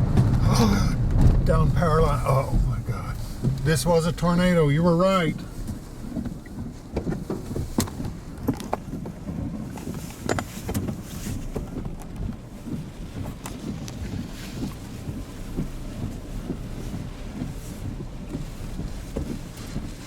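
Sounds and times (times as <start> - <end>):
sharp knocks and clicks: 0.0 - 2.0, 2.7 - 4.3
road rumble inside vehicle: 0.0 - 20.0.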